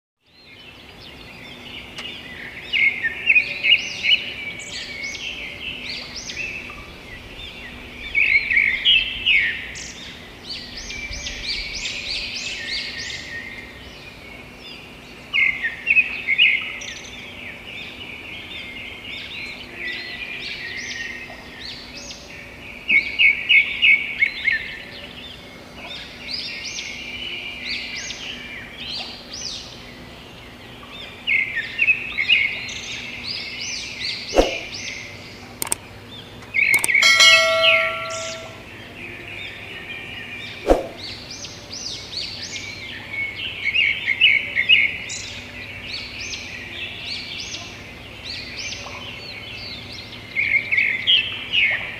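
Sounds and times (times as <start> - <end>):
small birds chirping: 0.2 - 51.9
bursts of rapid bird notes: 34.3 - 34.7.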